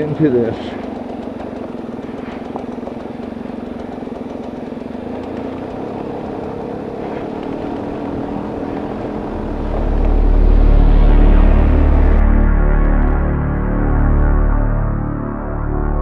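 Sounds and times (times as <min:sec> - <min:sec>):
truck engine running: 0:00.0 - 0:16.0
music: 0:09.3 - 0:16.0.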